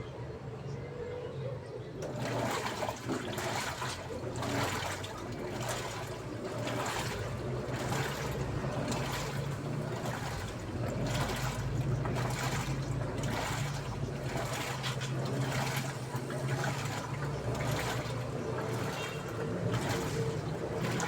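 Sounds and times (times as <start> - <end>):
washing machine hum: 0.0 - 21.0
water sloshing in washing machine: 2.0 - 21.0.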